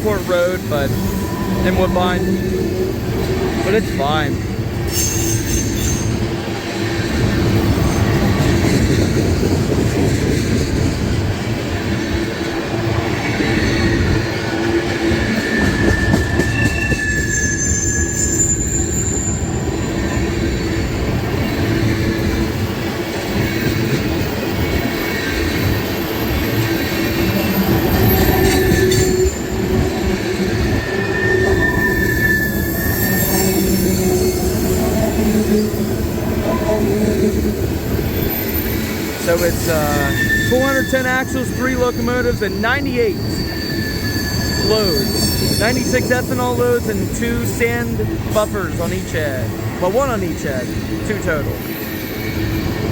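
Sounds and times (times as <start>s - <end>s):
train wheels rumbling on rail: 0.0s - 52.9s
wheel squeals: 4.9s - 6.3s, 13.2s - 22.3s, 24.6s - 35.8s, 37.9s - 47.0s, 51.5s - 52.9s.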